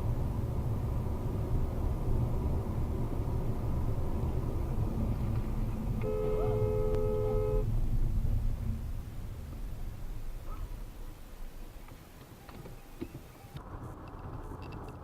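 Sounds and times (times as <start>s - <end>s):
car engine and road rumble: 0.0s - 15.0s
vehicle horn blast: 5.9s - 7.8s.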